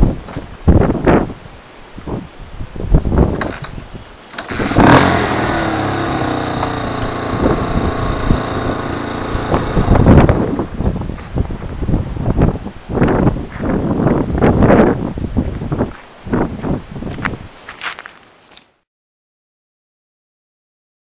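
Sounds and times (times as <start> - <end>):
motorcycle engine starting and idling: 3.3 - 10.9
engine knocks: 4.4 - 10.8.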